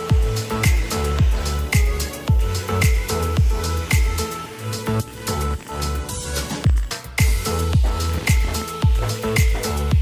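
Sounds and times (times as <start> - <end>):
electronic music with kick drum: 0.0 - 10.0.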